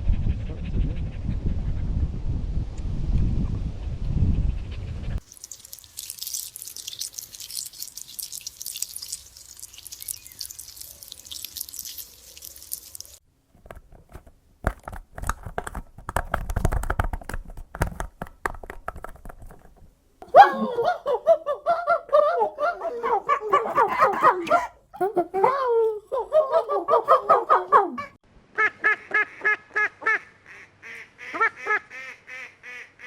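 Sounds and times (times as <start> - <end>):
animal chewing and crunching food: 5.2 - 13.2
pitched voice: 20.2 - 28.1.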